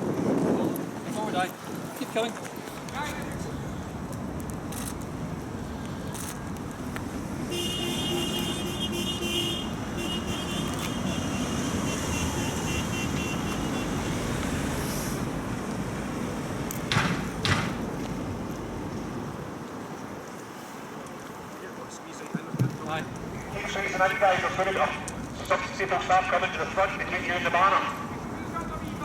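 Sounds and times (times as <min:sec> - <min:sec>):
traffic: 0:00.0 - 0:29.0
sharp knocks: 0:16.8 - 0:17.9.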